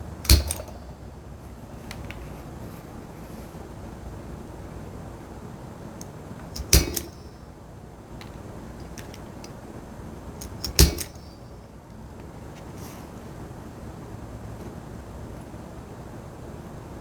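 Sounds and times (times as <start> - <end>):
punching holes in leather: 0.2 - 1.1, 6.6 - 7.4, 10.4 - 11.4.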